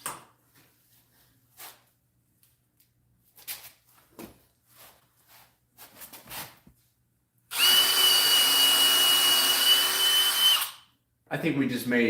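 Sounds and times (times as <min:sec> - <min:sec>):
power drill boring into wood: 0:07.5 - 0:10.8.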